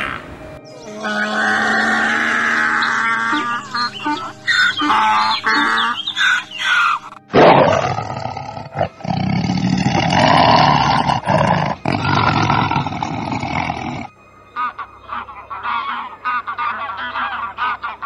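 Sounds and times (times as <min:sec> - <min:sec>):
higher wavering sound: 0:00.0 - 0:07.9
tiger roaring: 0:07.3 - 0:14.1.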